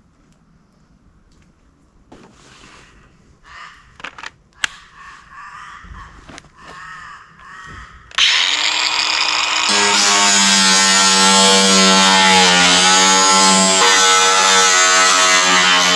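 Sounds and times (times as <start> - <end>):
crows cawing: 3.4 - 4.1, 4.8 - 8.2
sharp clicks: 4.0 - 4.9
power drill motor whine: 8.2 - 11.4.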